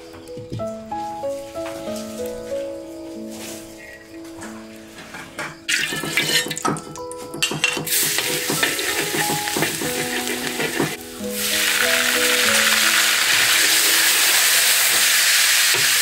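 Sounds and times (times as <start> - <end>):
garlic sizzling in hot oil: 5.7 - 6.7, 7.9 - 16.0
metal ladle scraping a wok: 8.2 - 11.0.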